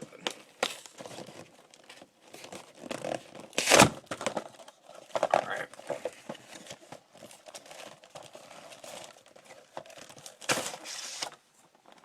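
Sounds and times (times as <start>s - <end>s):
wrapper crinkling and rustling: 0.0s - 12.0s.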